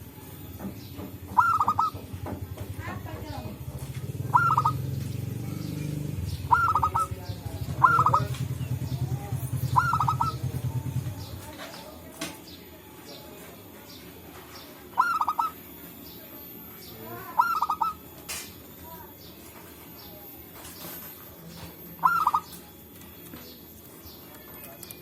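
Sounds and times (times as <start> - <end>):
doves cooing: 0.0 - 12.0, 14.8 - 15.8, 17.0 - 18.2, 20.8 - 23.3.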